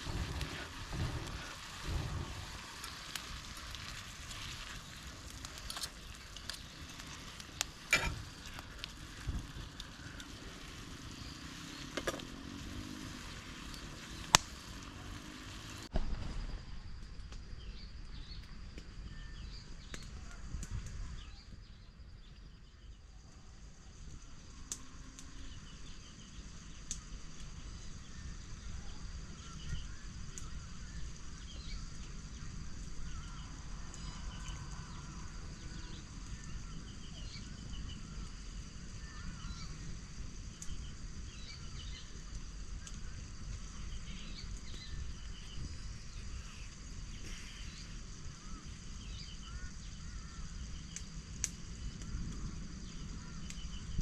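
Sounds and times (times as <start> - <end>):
food sizzling in a pan: 0.0 - 15.9
low rumble: 0.0 - 18.4
campfire crackling: 0.0 - 54.0
faint chirps: 16.5 - 54.0.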